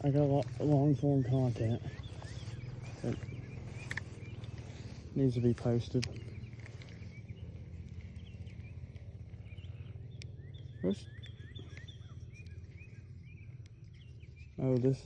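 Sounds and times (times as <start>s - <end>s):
short high chirping calls: 0.0s - 7.4s
steady low hum: 0.0s - 15.0s.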